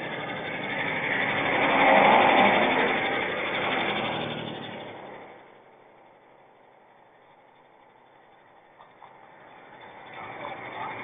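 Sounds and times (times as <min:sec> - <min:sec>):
motor vehicle passing by: 0:00.0 - 0:05.6, 0:08.8 - 0:11.0.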